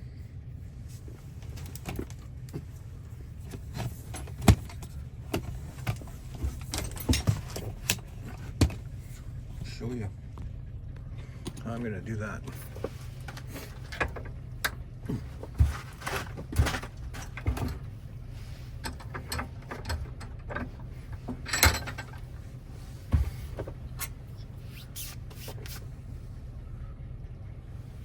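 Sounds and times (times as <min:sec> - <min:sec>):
low hum: 0:00.0 - 0:28.0
metal parts and tools clicking: 0:18.8 - 0:22.5.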